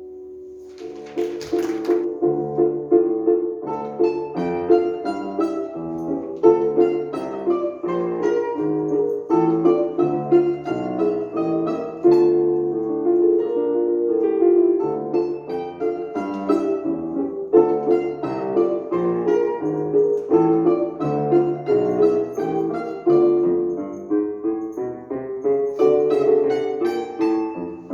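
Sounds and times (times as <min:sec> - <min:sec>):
solo piano music: 0:00.0 - 0:27.9.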